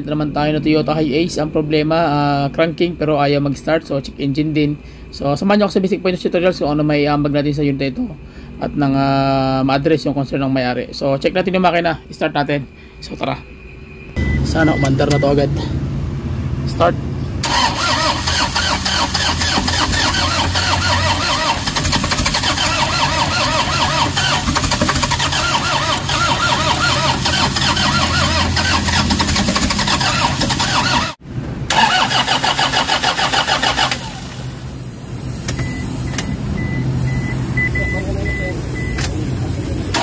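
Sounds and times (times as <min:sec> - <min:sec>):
short high beeps: 0:14.1 - 0:15.4, 0:35.6 - 0:39.0
diesel engine cranking: 0:14.2 - 0:40.0.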